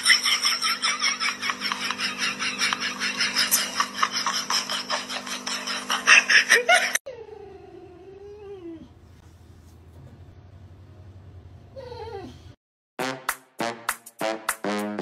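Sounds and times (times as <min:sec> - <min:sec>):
dog whining: 0:07.0 - 0:09.0, 0:11.7 - 0:12.6.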